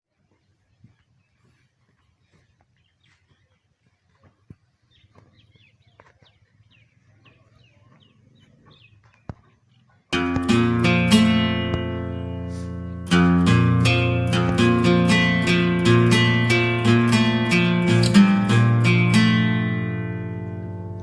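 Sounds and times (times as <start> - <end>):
strummed acoustic guitar music: 10.1 - 21.0
low steady hum: 10.2 - 21.0.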